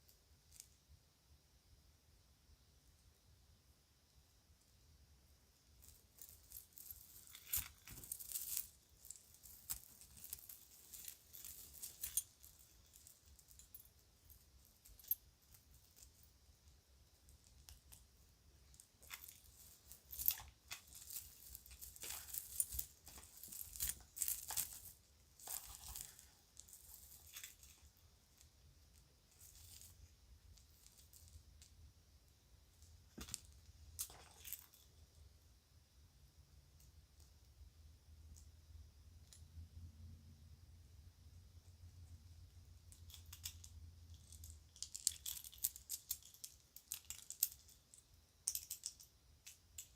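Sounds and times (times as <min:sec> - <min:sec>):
jewelry clicking and clinking: 0:05.6 - 0:35.2, 0:42.6 - 0:49.9.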